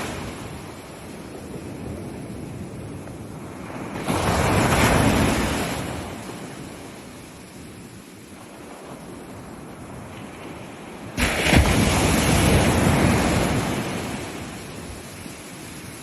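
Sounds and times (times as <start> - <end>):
soft wash of water: 0.0 - 16.0
wave breaking loudly: 11.2 - 14.8.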